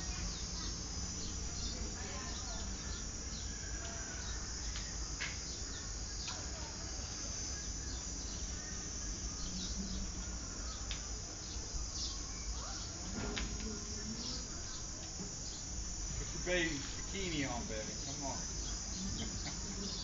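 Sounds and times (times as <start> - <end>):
steady high hiss: 0.0 - 20.0
birds chirping: 7.4 - 13.1, 13.8 - 20.0.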